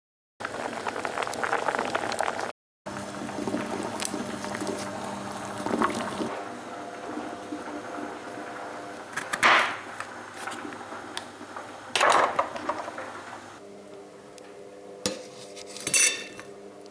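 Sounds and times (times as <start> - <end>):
liquid bubbling and sloshing: 0.4 - 9.2.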